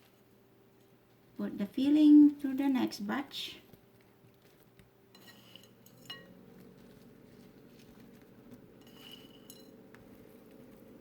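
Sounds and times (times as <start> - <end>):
low steady hum: 0.0 - 11.0
metal utensil clinking bowl: 5.1 - 7.2, 7.8 - 10.2.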